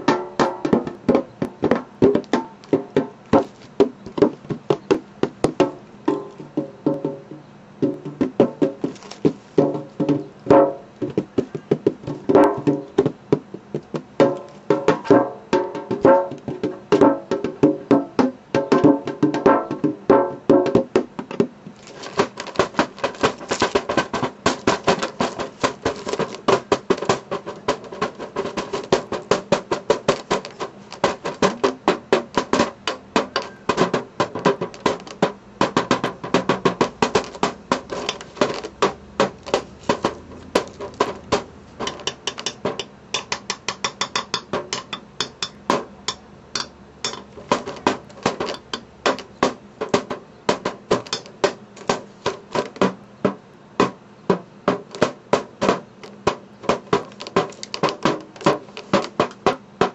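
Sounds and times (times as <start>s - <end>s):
metal pan tapped as a drum: 41.8s - 47.3s.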